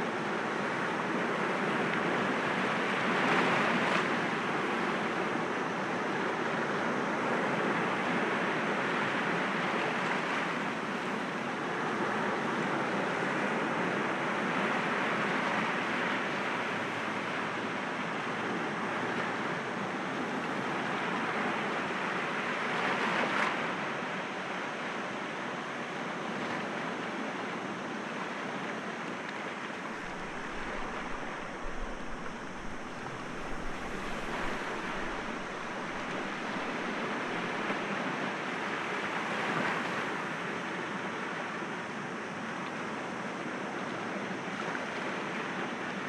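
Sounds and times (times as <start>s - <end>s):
waves breaking against rocks: 29.9s - 37.6s
wind buffeting microphone: 29.9s - 37.6s.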